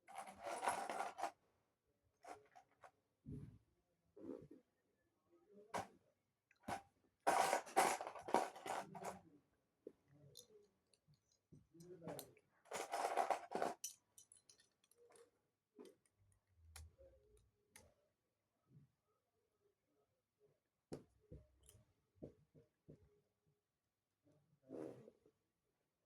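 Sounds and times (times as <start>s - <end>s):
plastic pieces clattering and clicking: 0.1s - 1.3s, 7.3s - 9.2s, 12.7s - 15.2s.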